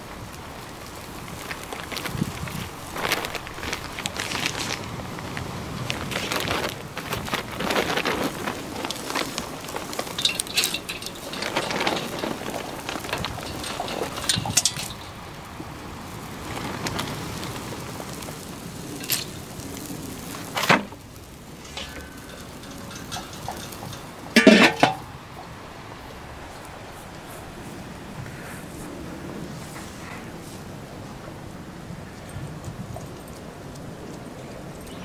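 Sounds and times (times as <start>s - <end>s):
crackling and clatter: 0.0s - 27.4s
metallic clinks: 10.1s - 15.2s, 21.7s - 25.1s.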